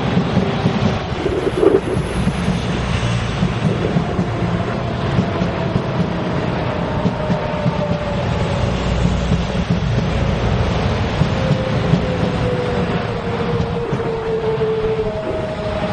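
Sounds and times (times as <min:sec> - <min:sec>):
electric train passing: 0:00.0 - 0:15.9
freight train on far track: 0:00.0 - 0:15.9
clattering train wheels: 0:02.1 - 0:14.5.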